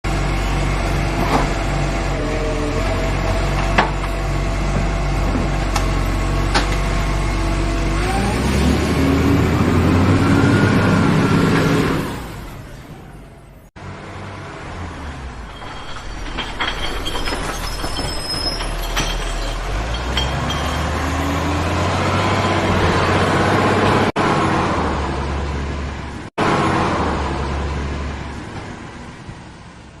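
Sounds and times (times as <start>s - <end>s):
heavy vehicle engine rumbling: 0.1s - 30.0s
light metallic clanks: 15.4s - 21.0s.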